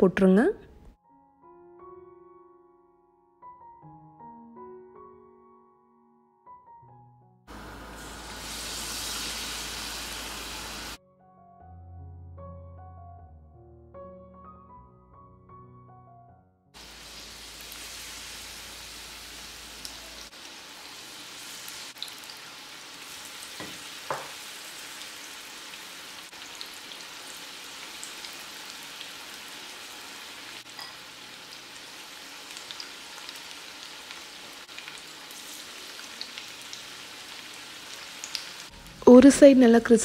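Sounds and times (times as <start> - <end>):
food deep-frying in oil: 7.5 - 11.0, 16.8 - 40.0
oil crackles and pops: 31.6 - 38.7.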